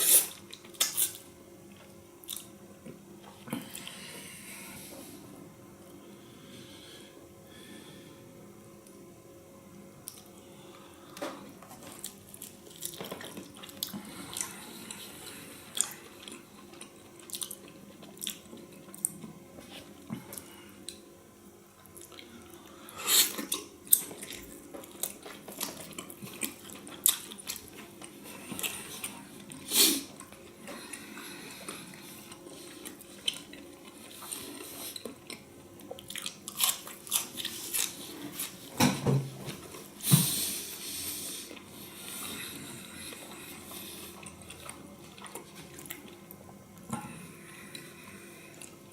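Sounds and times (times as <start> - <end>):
person chewing meat: 10.0 - 21.0, 21.8 - 38.7, 40.6 - 48.9.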